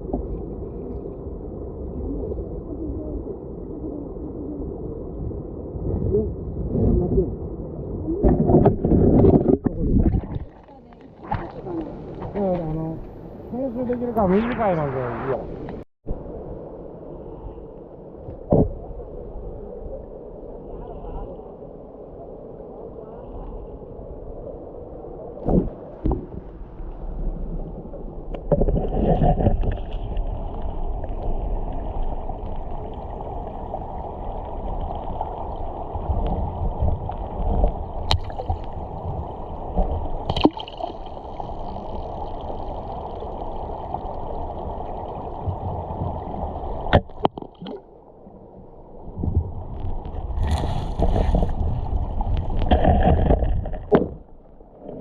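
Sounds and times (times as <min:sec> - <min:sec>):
river water gurgling and splashing: 0:25.4 - 0:55.0.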